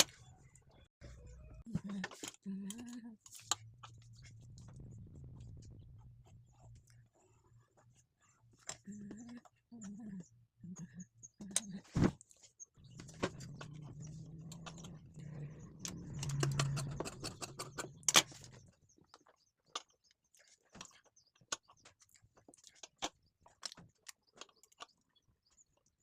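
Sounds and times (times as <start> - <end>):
sewing machine stitching: 15.3 - 18.3.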